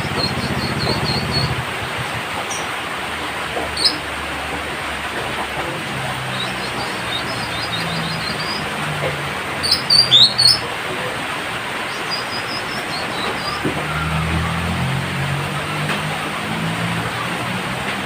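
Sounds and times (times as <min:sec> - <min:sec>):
bird chirping and twittering: 0:00.0 - 0:02.7, 0:03.7 - 0:04.1, 0:05.7 - 0:11.0, 0:11.6 - 0:14.9.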